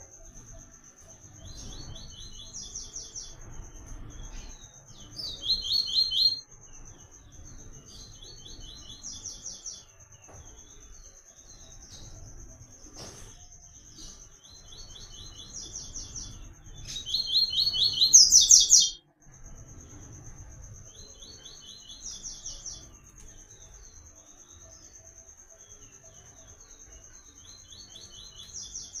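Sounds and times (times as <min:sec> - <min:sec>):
seedeater bird singing: 0:00.0 - 0:19.0
thin steady high tone: 0:13.5 - 0:29.0.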